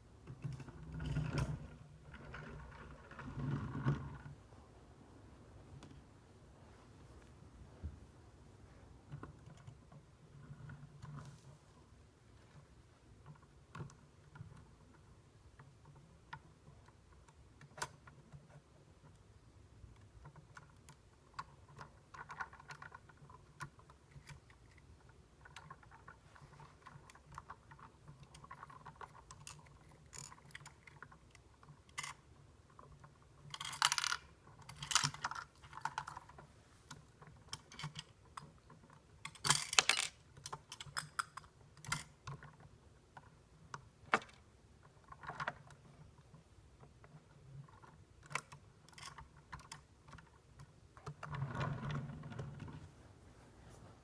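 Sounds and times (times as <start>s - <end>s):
plastic toy clicking: 19.9s - 45.8s
plastic toy rattling: 20.0s - 43.4s, 44.0s - 52.8s.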